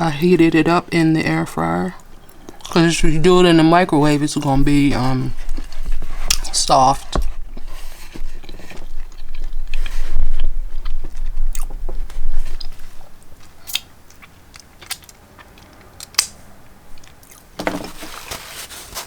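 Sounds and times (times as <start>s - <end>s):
crunchy chewing: 7.3s - 16.4s.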